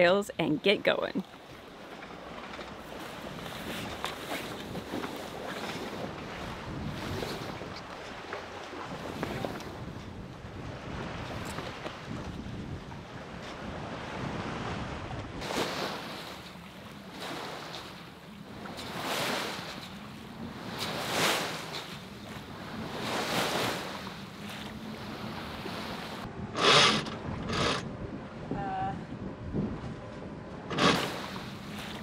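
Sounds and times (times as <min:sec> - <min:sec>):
water splashing along hull: 0:00.0 - 0:32.0
wind on microphone: 0:03.2 - 0:16.3, 0:20.4 - 0:32.0.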